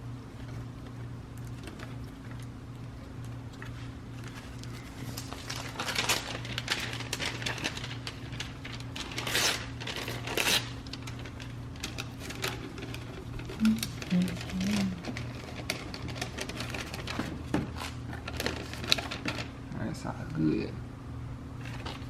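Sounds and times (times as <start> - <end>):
steady low hum: 0.0 - 22.0
paper crinkling: 3.2 - 19.6
tape tearing off roll: 8.9 - 10.8.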